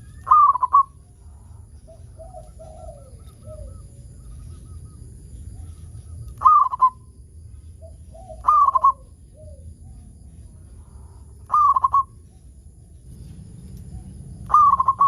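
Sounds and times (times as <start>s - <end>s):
dove cooing: 0.0s - 7.1s, 7.8s - 10.0s, 11.4s - 12.2s, 14.4s - 15.0s
faint bird calls: 0.0s - 12.6s, 13.9s - 15.0s.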